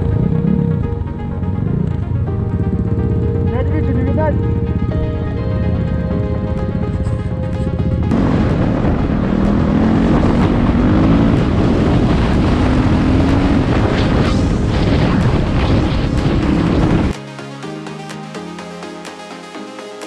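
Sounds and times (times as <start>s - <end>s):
wind noise on microphone: 5.8s - 17.2s
motorcycle engine revving: 8.1s - 17.1s.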